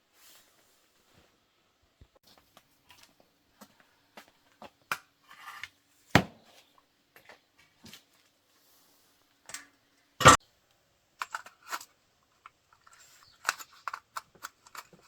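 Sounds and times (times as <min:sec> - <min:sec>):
metal tools clicking and knocking: 0:11.2 - 0:15.0.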